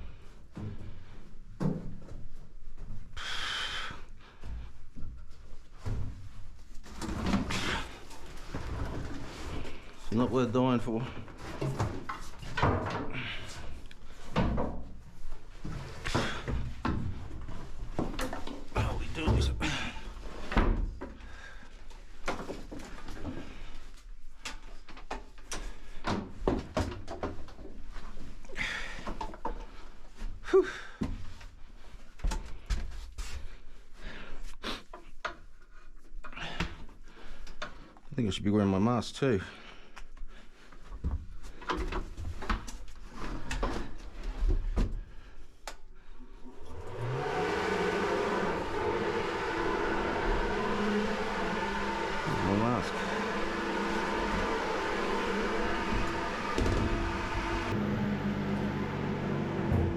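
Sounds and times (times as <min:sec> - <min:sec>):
objects knocking and clattering: 0:11.4 - 0:13.2
motor running: 0:46.7 - 0:59.9.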